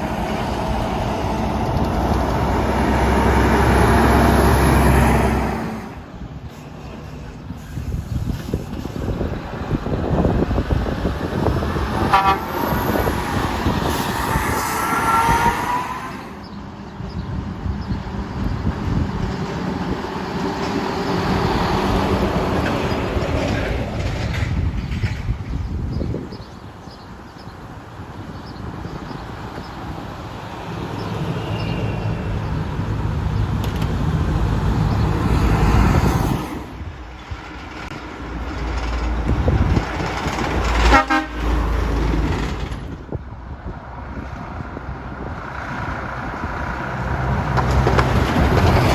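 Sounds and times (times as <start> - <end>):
heavy truck driving past: 0.0 - 8.2
truck horn toot: 12.0 - 13.0, 40.8 - 41.5.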